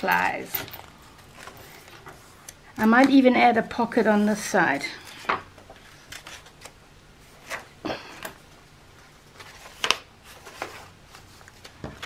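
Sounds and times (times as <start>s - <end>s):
paper rustling: 5.0s - 7.8s, 9.0s - 12.0s.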